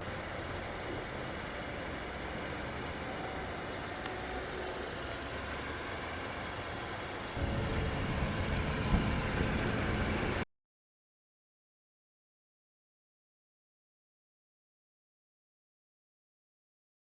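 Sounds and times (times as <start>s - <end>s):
car engine and exhaust: 0.0s - 10.5s.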